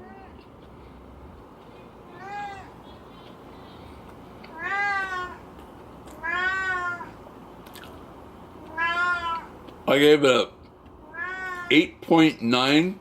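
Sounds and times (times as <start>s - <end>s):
cat meowing: 2.1s - 2.8s, 4.5s - 5.4s, 6.2s - 7.2s, 8.6s - 9.6s, 11.0s - 11.7s.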